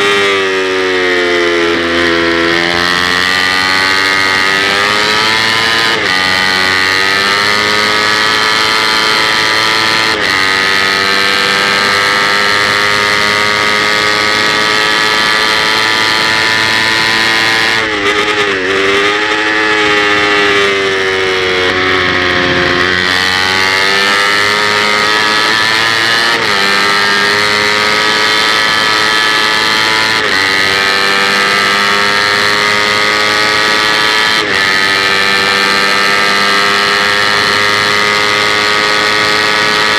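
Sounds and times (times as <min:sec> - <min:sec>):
motorcycle engine at high revs: 0:00.0 - 0:39.9
wind rushing: 0:21.1 - 0:25.1.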